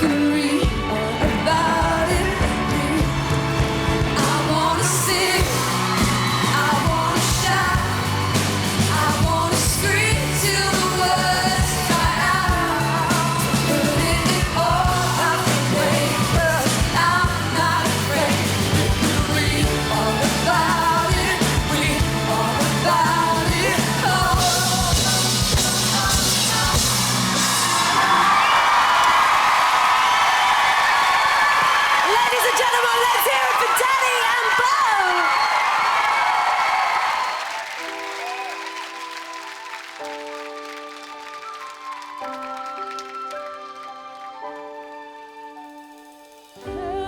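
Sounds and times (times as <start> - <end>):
man and woman singing duet: 0.0 - 28.5, 46.7 - 47.0
live band playing: 0.0 - 29.0
crowd cheering: 0.0 - 45.0.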